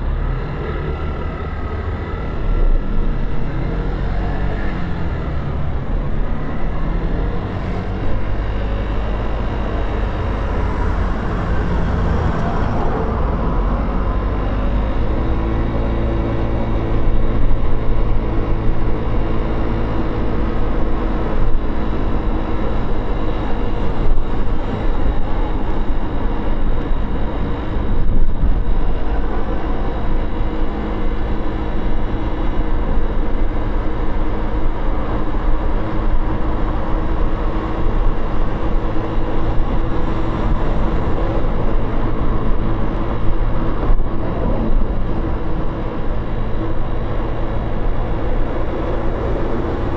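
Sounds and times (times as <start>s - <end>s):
wind and road rumble: 0.0s - 49.9s.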